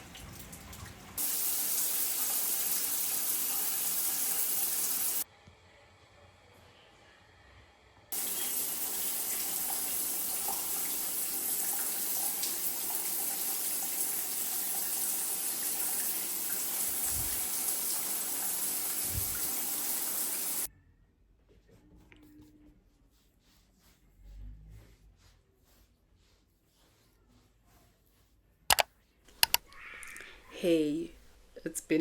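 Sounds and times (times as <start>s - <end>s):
shower water running: 0.0s - 5.3s, 8.1s - 20.7s.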